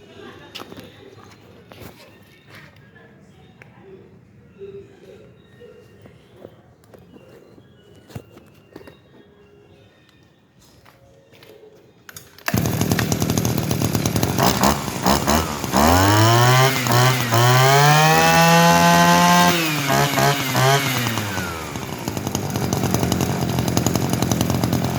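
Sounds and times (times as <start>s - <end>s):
small two-stroke engine revving: 12.5s - 24.9s.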